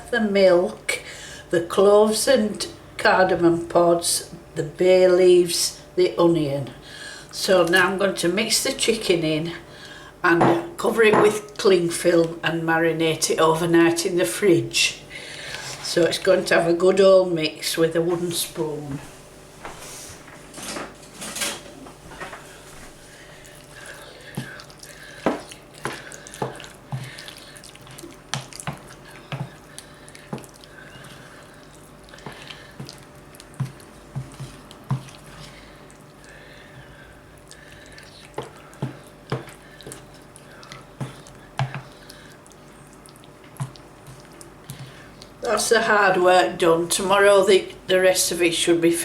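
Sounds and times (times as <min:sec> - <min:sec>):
wet squelching of stirring: 0:22.0 - 0:47.2.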